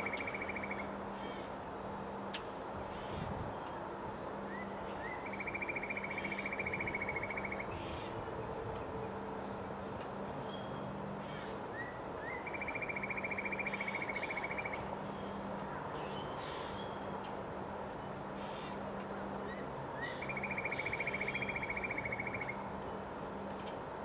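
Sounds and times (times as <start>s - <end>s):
bird singing a rapid trill: 0.0s - 1.4s, 4.5s - 8.1s, 10.5s - 15.3s, 19.5s - 22.6s
wind noise: 3.1s - 3.6s.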